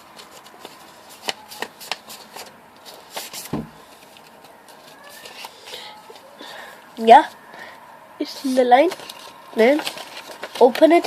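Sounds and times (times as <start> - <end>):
paper crackles and taps: 0.0 - 6.2, 8.9 - 11.0
paper being creased: 0.2 - 6.3, 8.9 - 11.0
dull thump: 3.5 - 3.8.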